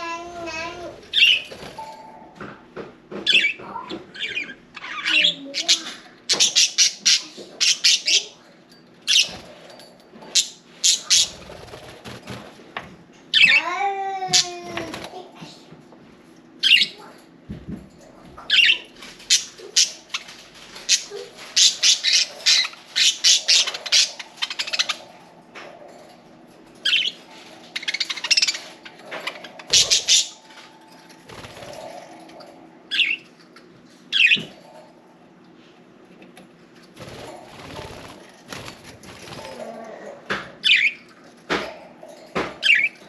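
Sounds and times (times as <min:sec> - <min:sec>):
budgerigars chirping and squawking: 0:01.1 - 0:01.9, 0:03.2 - 0:08.4, 0:09.1 - 0:09.6, 0:10.3 - 0:11.9, 0:13.3 - 0:13.6, 0:16.6 - 0:17.1, 0:18.4 - 0:25.2, 0:26.8 - 0:30.6, 0:32.9 - 0:33.3, 0:34.1 - 0:34.6, 0:40.6 - 0:41.1, 0:42.4 - 0:43.0
wings flapping: 0:11.1 - 0:12.7, 0:27.3 - 0:32.5, 0:37.0 - 0:39.9.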